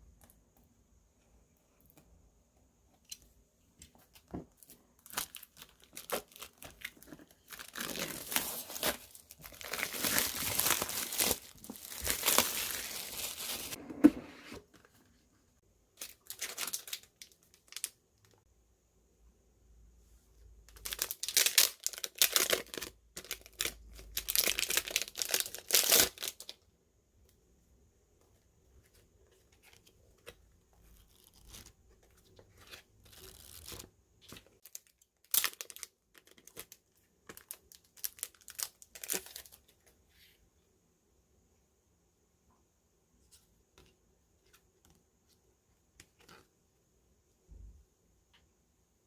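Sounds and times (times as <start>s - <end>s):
packaging crinkling and tearing: 4.6s - 13.8s, 20.8s - 26.5s, 34.4s - 39.6s.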